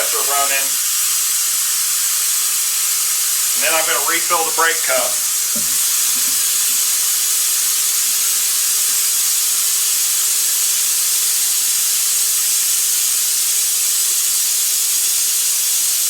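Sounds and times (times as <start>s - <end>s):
air compressor hum: 0.0s - 8.8s
compressed air hissing: 0.0s - 12.6s.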